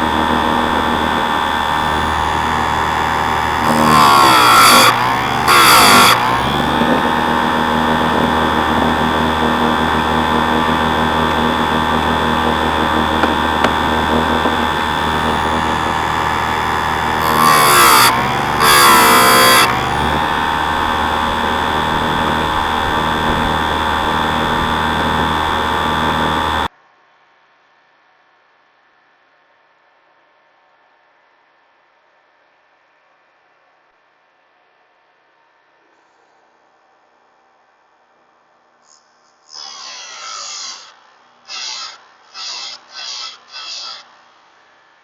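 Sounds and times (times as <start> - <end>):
grinding wheel biting chain: 0.0 - 26.7
sharpener motor whine: 0.0 - 26.7, 38.9 - 44.4.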